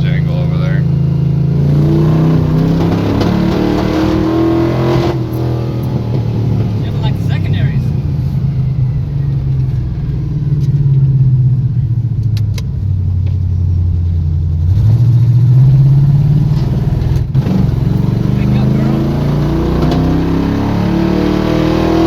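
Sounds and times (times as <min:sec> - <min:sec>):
truck engine at full throttle: 0:00.0 - 0:22.0.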